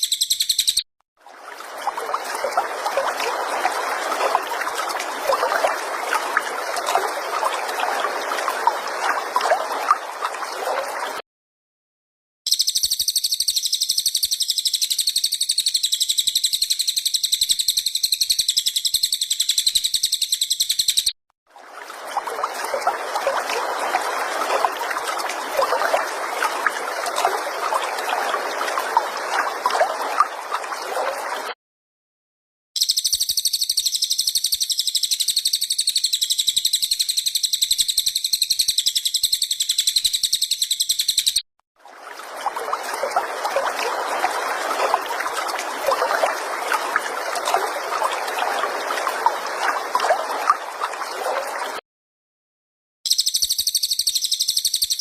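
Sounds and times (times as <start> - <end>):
songbird trilling: 0.0 - 0.8, 12.5 - 21.1, 32.8 - 41.4, 53.1 - 55.0.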